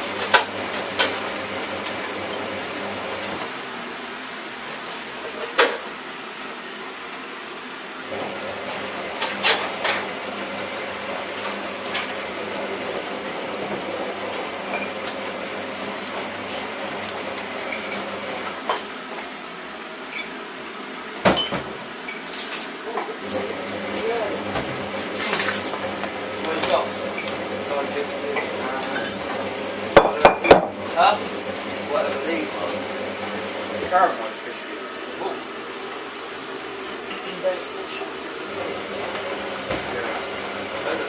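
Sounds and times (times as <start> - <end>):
crockery and cutlery clinking: 28.3 - 29.4.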